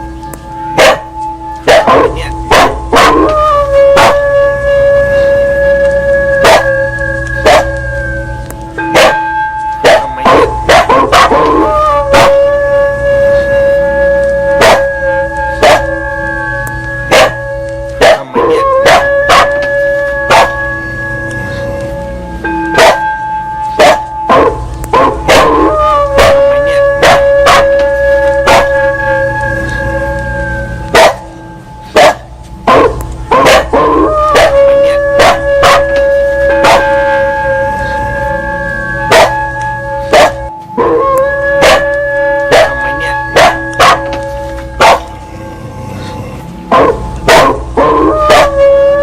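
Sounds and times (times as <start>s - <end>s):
temple bell ringing: 0.0s - 49.0s
dog barking and yelping: 0.8s - 4.4s, 6.3s - 7.9s, 8.9s - 12.5s, 14.5s - 20.8s, 22.7s - 23.1s, 23.7s - 29.8s, 30.9s - 31.3s, 31.9s - 38.0s, 39.0s - 41.0s, 41.6s - 45.2s, 46.7s - 48.9s.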